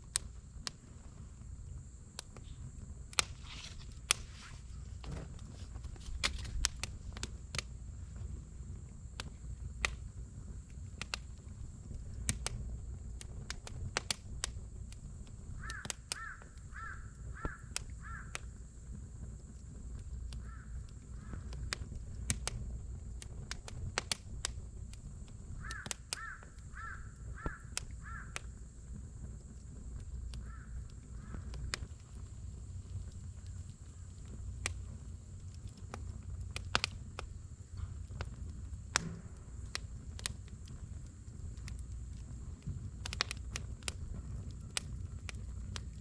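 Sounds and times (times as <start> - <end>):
campfire crackling and popping: 0.0 - 46.0
low steady rumble: 0.0 - 46.0
bird calling: 15.6 - 18.5, 25.6 - 28.4.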